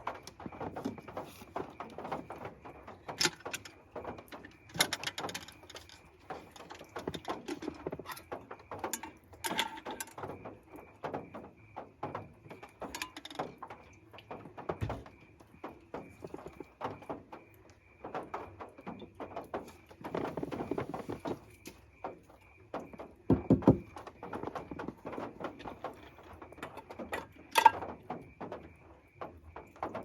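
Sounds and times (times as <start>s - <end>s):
clicks and knocks: 0.0s - 15.2s, 22.8s - 28.6s.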